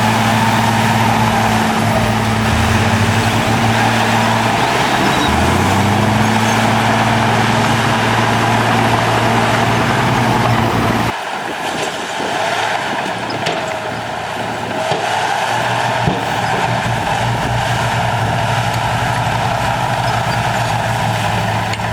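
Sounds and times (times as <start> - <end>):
hissing noise: 0.0 - 11.1
diesel engine humming: 0.0 - 11.2, 12.4 - 21.9.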